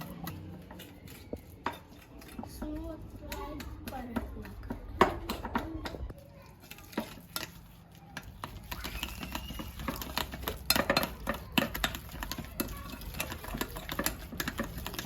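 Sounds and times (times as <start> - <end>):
utensil scraping against bowl: 0.0 - 15.0.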